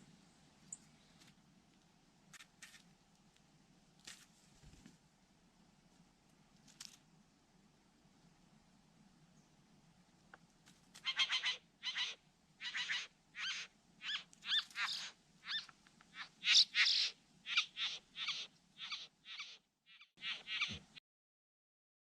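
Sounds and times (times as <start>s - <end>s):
bird harsh nasal calls: 11.0s - 20.8s.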